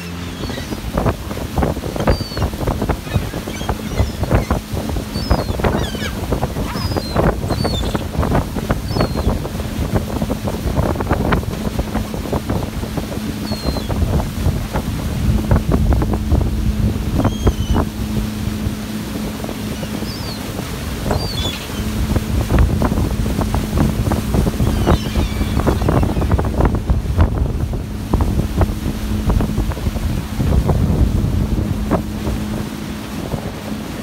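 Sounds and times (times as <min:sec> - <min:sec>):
gull calls: 0:00.0 - 0:00.9, 0:02.0 - 0:08.2, 0:08.8 - 0:09.4, 0:13.4 - 0:14.0, 0:19.8 - 0:22.0, 0:24.5 - 0:26.5
boat engine humming: 0:00.0 - 0:34.0
wind buffeting microphone: 0:00.0 - 0:34.0.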